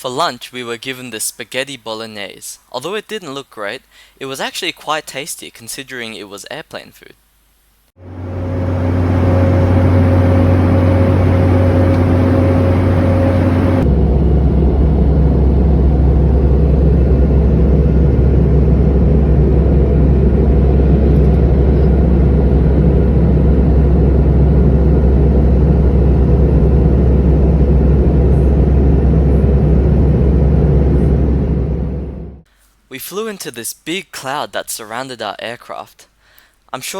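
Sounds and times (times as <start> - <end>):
aircraft cabin engine roar: 8.0 - 32.5
low hum: 8.0 - 32.5.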